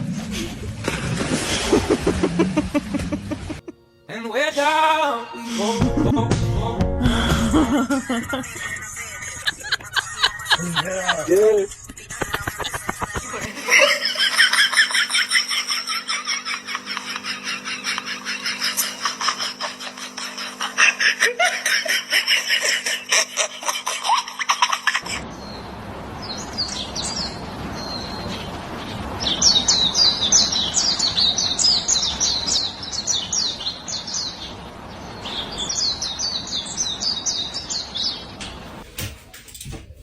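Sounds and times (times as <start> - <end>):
dense rapid chattering: 8.3 - 13.4
small birds chirping: 25.0 - 38.8.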